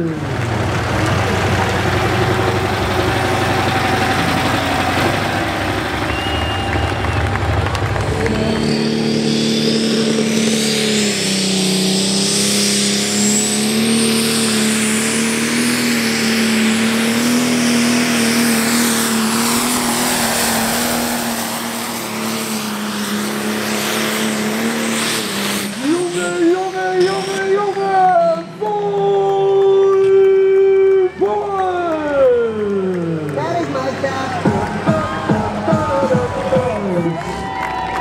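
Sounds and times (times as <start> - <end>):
diesel engine under load: 0.0 - 38.0
high turbocharger whistle: 2.1 - 31.2.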